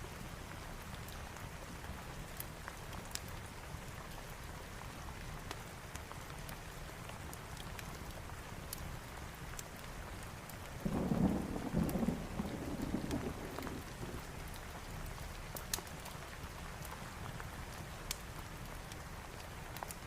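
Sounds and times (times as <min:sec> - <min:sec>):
steady rain falling: 0:00.0 - 0:20.0
fireplace crackles: 0:00.5 - 0:20.0
thunder rolling: 0:10.8 - 0:14.2.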